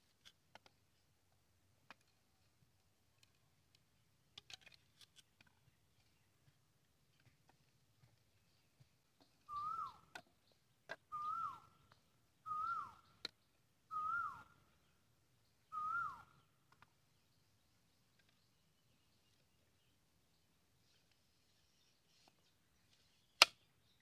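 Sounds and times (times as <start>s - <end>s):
bird calling with falling notes: 9.2s - 16.5s.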